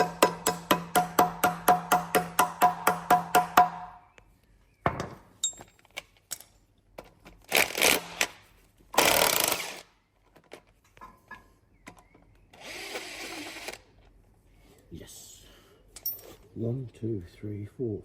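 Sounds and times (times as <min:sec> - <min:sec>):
tools and metal parts clinking: 0:05.0 - 0:07.5, 0:10.2 - 0:12.2, 0:15.9 - 0:16.5
power tool bursts: 0:09.0 - 0:09.9, 0:12.6 - 0:13.8.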